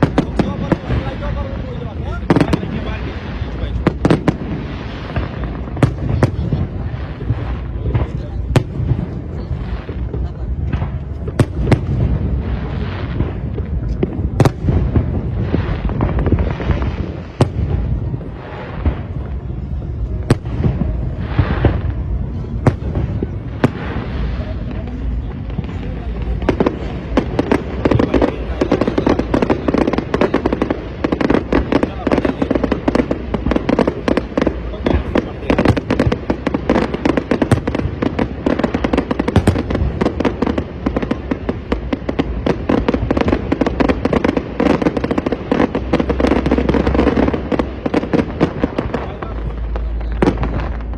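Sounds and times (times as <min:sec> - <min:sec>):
fireworks bangs: 0:00.0 - 0:50.9
low rumble: 0:00.0 - 0:50.9.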